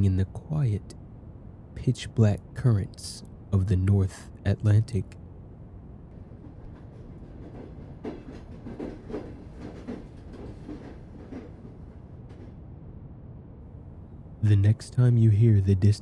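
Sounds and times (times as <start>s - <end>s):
train rumbling on rails: 0.0s - 16.0s
wheels clacking over rail joints: 6.2s - 12.4s.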